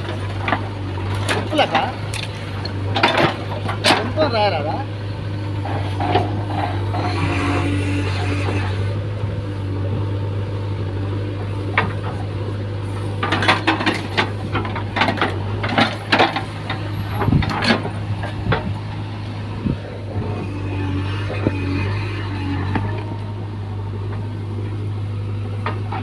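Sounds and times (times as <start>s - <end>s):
clattering knocks and scrapes: 0.0s - 4.2s, 5.6s - 9.0s, 13.2s - 18.8s
diesel engine running: 0.0s - 26.0s.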